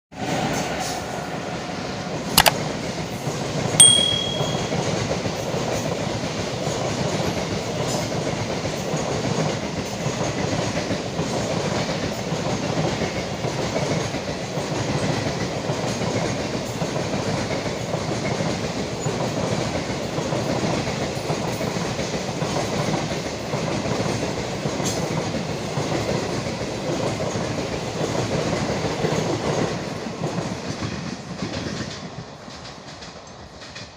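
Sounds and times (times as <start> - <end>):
train wheels rumbling on track: 0.2 - 33.9
sharp click: 3.8 - 4.7
brief high-pitched tone: 3.8 - 4.8.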